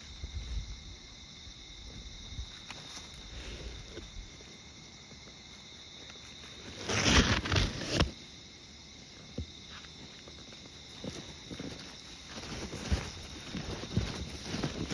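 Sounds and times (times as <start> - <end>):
insects trilling: 0.0 - 14.9
loud close rustling: 6.4 - 8.2, 10.9 - 14.9.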